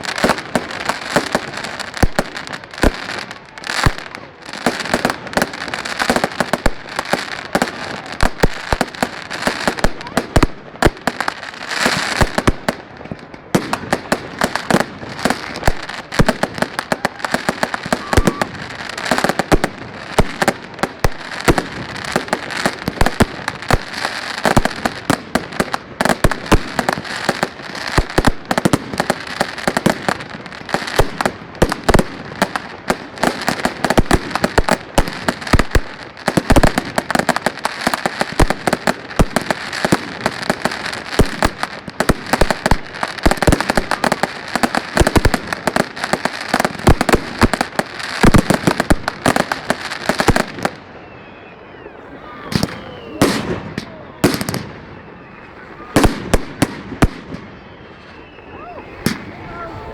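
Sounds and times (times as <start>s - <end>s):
fireworks bangs and cracks: 0.0s - 59.9s
fireworks crackling: 0.0s - 59.9s.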